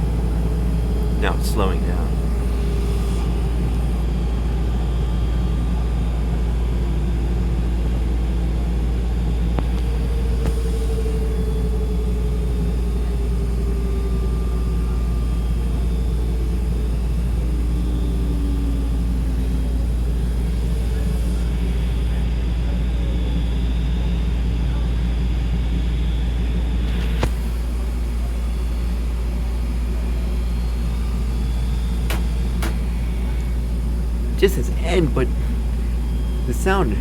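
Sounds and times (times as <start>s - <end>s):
washing machine drum slowing down: 31.9s - 34.3s.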